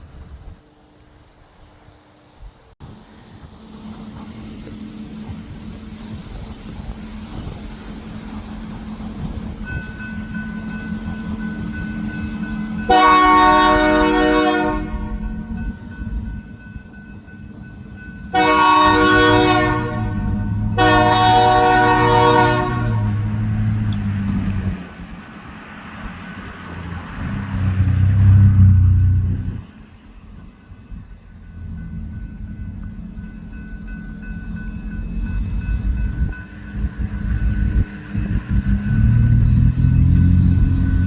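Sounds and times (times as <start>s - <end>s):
diesel engine rumble: 2.1s - 41.0s
locomotive air horn blasts: 12.9s - 15.5s, 18.3s - 23.8s.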